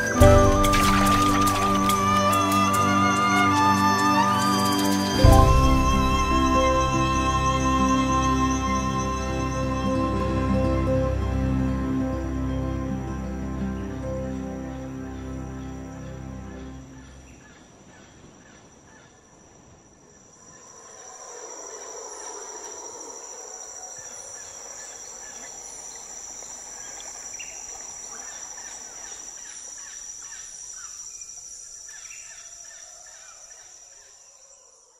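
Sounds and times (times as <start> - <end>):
shrill insect drone: 0.0 - 17.2, 19.7 - 34.9
background music: 0.0 - 17.3
insects chirping: 0.0 - 34.9.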